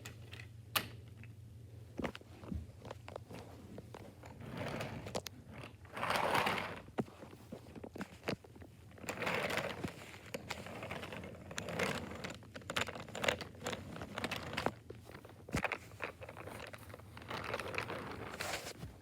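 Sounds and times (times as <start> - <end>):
rustling and scraping: 1.9 - 19.0
plastic toys clicking and tapping: 11.5 - 18.0.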